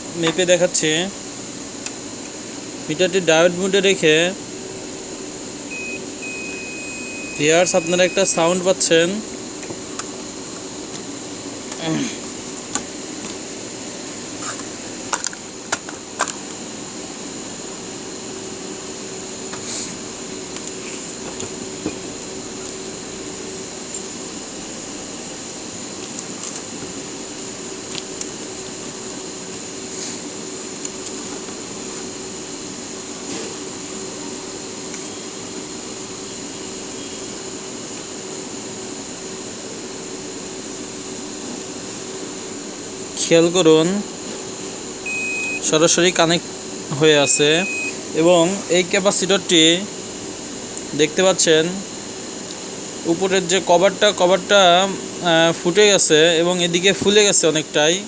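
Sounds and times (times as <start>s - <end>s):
electrical hum with high whine: 0.0s - 58.0s
high-pitched tone: 5.7s - 8.6s, 47.1s - 48.0s
multimeter continuous beep: 5.7s - 9.3s, 45.0s - 46.2s, 46.9s - 48.3s.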